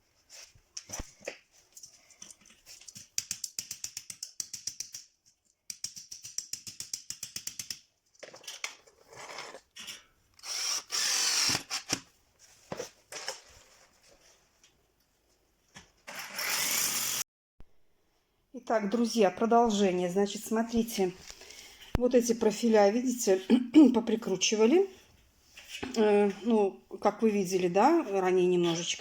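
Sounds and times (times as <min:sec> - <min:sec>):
drill rapid clicking: 0:10.4 - 0:12.0, 0:16.2 - 0:17.2
drill driving screws into metal: 0:10.4 - 0:12.1, 0:16.1 - 0:17.2.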